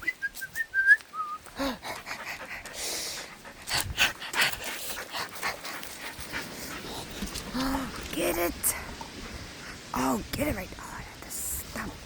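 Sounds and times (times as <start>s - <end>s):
dog panting: 1.5s - 7.6s.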